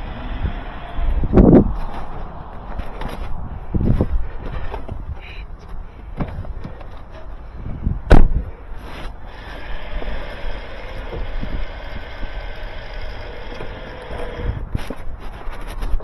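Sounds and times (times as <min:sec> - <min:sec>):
car running with low hum: 0:00.0 - 0:07.1.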